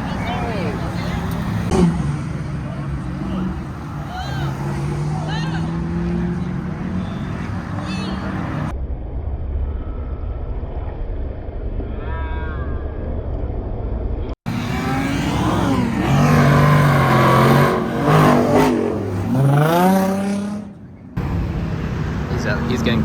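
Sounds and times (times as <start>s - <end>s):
car engine accelerating hard: 0.0s - 8.7s, 14.5s - 23.0s.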